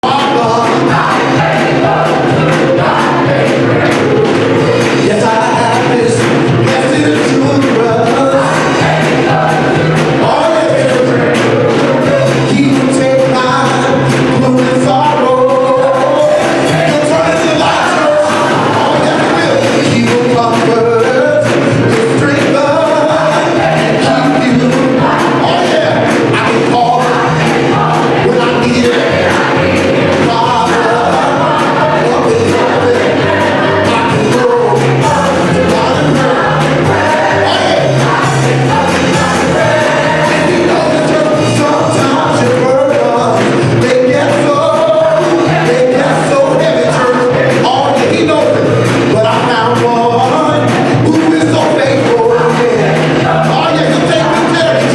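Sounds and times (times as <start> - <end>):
bass line: 0.0 - 54.9
gospel singing: 0.0 - 54.9
steady drum beat: 0.0 - 54.9.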